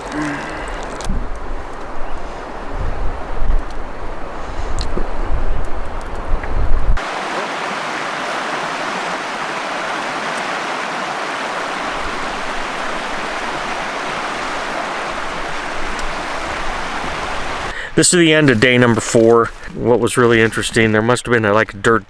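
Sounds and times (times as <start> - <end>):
wind rumble on microphone: 0.6 - 7.0
river water rushing: 7.0 - 17.8.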